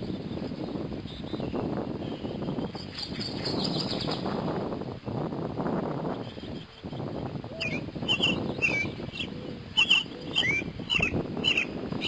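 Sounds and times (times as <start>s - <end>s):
wind buffeting microphone: 0.0s - 12.0s
small bird chirping: 6.2s - 11.8s.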